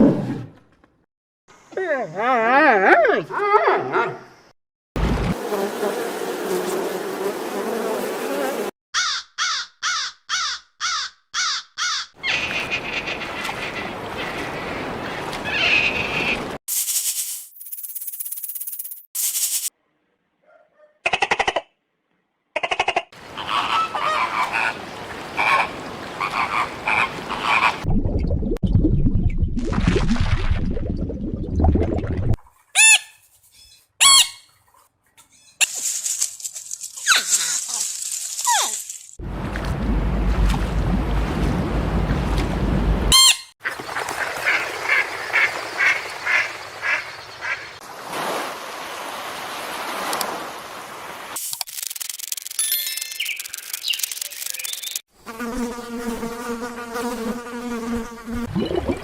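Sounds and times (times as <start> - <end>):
waterfowl honking: 9.0 - 13.8, 23.2 - 27.8, 42.3 - 47.8
loud low rumbling: 39.2 - 43.1.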